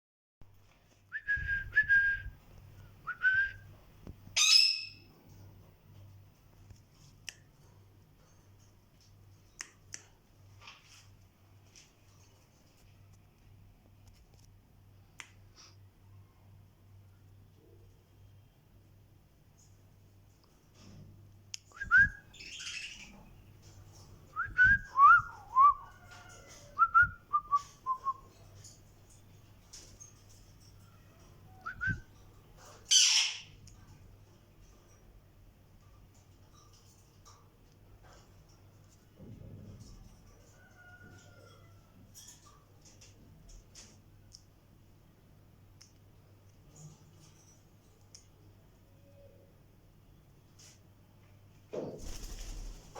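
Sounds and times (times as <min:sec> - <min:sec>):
loud harsh bird call: 0:32.9 - 0:33.5.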